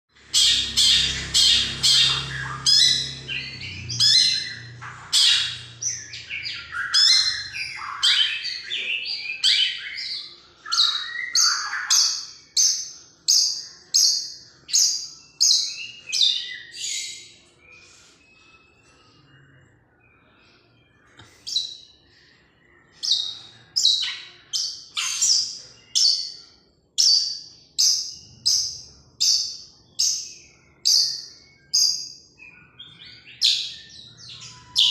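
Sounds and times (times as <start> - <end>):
shrike calling harsh notes: 0.2 - 8.0.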